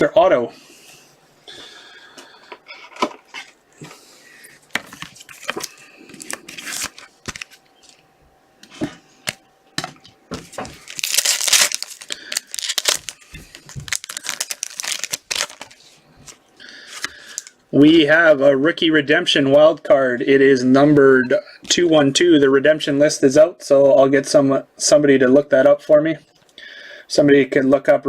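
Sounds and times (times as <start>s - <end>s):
wrapper crinkling and tearing: 5.2s - 7.6s, 10.8s - 17.5s.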